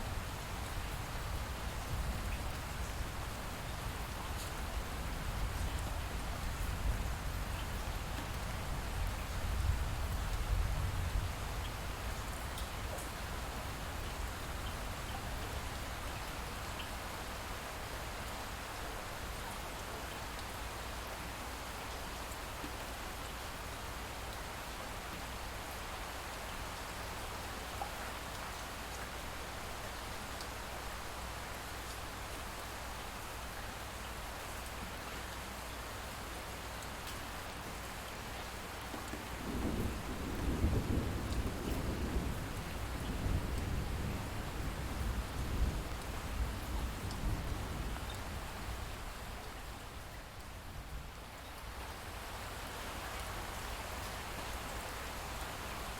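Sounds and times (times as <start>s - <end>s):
light rain pattering: 0.0s - 55.9s.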